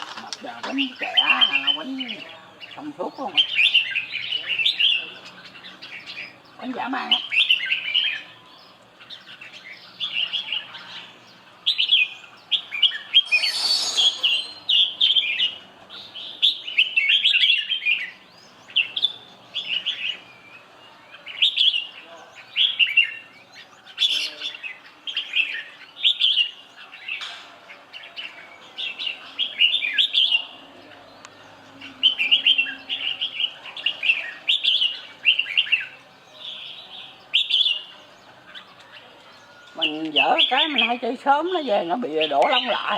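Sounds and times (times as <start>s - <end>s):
bulbul singing: 0.0s - 42.9s
brief noisy burst: 13.2s - 14.6s.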